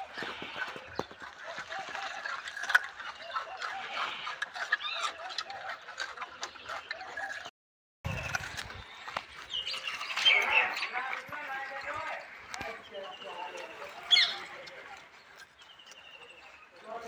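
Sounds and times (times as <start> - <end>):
birds chirping and clucking: 0.0 - 7.5, 8.1 - 17.0.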